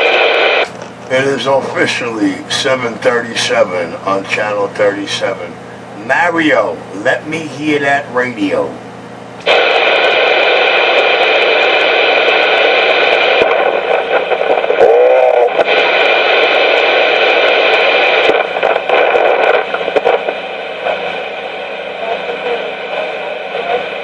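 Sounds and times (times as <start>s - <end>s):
crackly radio static: 0.0s - 24.0s
warbling radio tone: 9.5s - 24.0s.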